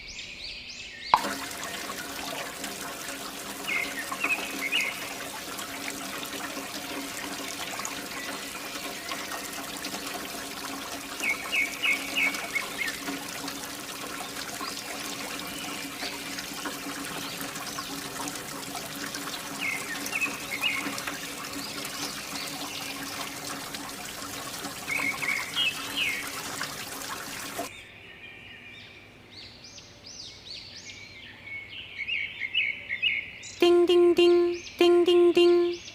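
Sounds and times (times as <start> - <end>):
water pouring and splashing: 1.2 - 27.7.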